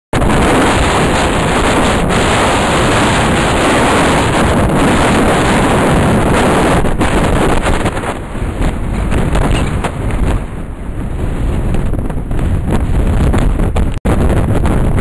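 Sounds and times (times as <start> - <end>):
rough sea surf: 0.2 - 15.0
strong wind on microphone: 0.2 - 15.0.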